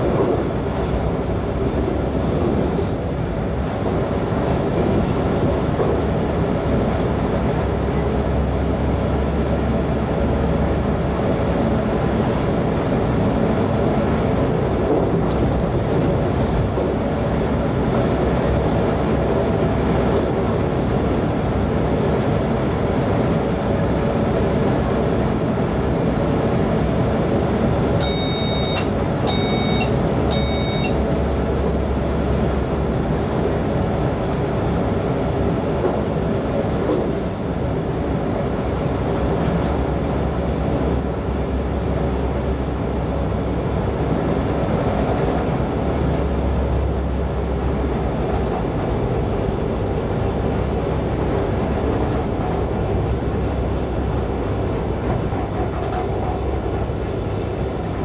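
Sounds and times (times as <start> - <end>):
train wheels rumbling on rail: 0.0 - 58.0
short electronic beeping: 28.0 - 31.0.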